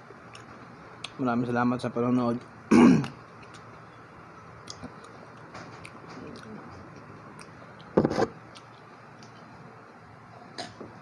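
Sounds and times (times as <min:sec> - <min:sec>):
quiet chewing: 0:00.2 - 0:01.2, 0:02.4 - 0:09.6.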